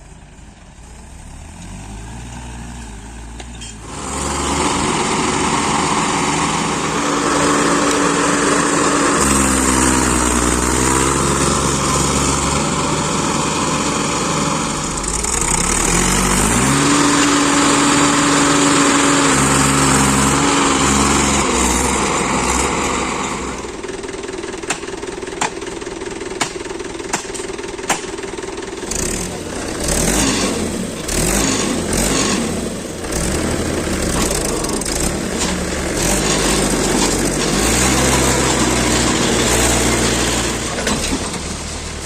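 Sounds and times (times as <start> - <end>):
heavy diesel engine under load: 0.0 - 42.0.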